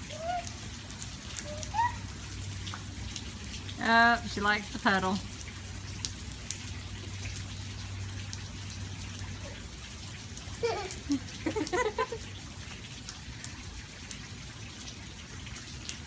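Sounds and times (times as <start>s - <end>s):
rain falling: 0.0s - 16.0s
high-pitched voice: 1.4s - 2.0s.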